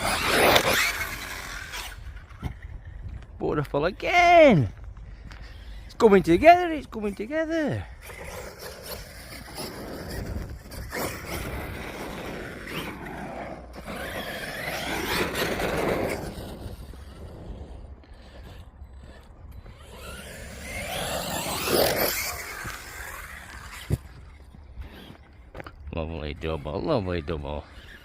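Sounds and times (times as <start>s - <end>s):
electric motor whining: 0.0s - 3.3s, 5.4s - 28.0s.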